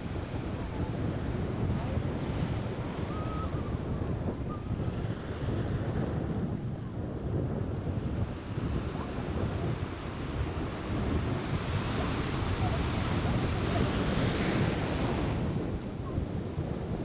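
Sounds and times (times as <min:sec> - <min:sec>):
wind buffeting microphone: 0:00.0 - 0:17.0
sea waves: 0:08.6 - 0:16.7.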